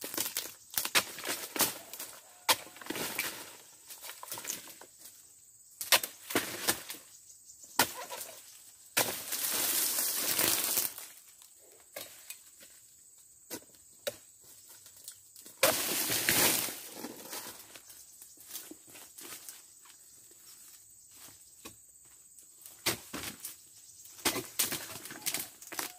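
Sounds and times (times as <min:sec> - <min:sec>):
chisel strikes on palm fronds: 0:05.8 - 0:07.0
rustling crashes of fronds: 0:09.0 - 0:11.2, 0:15.6 - 0:17.5.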